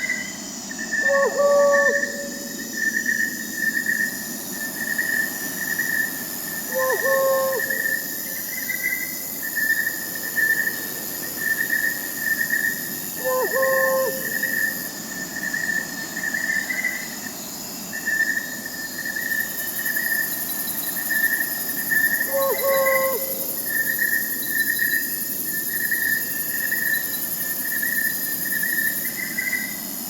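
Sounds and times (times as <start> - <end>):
crickets chirping: 0.0 - 30.0
high insect hiss: 0.0 - 30.0
owl hooting: 1.0 - 2.7, 6.6 - 8.9, 13.2 - 14.8, 22.2 - 23.9.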